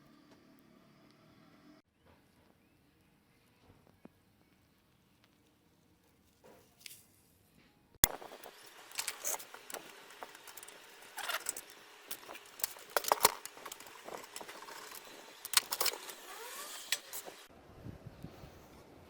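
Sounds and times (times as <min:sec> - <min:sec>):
metal parts clicking and clattering: 0:08.0 - 0:17.5.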